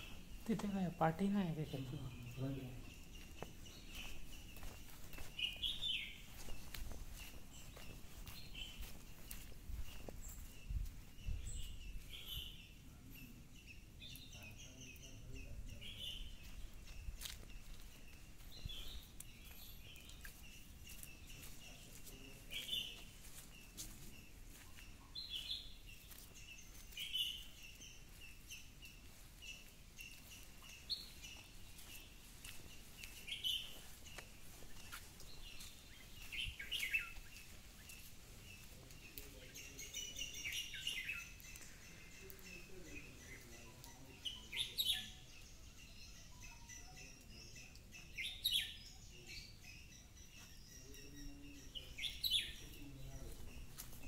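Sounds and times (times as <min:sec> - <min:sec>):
fuller bird calls: 0:00.0 - 0:54.0
high bird chirps: 0:00.0 - 0:54.0.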